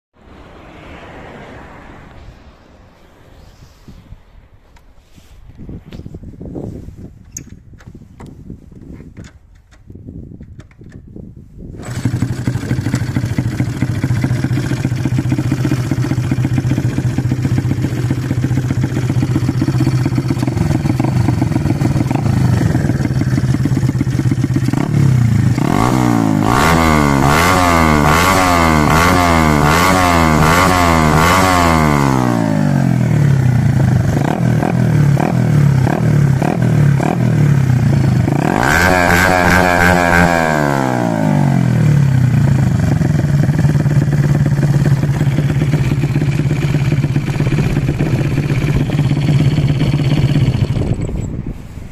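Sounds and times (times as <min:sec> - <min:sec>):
motorcycle engine idling: 0:11.8 - 0:25.9, 0:42.0 - 0:51.4
engine throttle blips: 0:11.8 - 0:51.9.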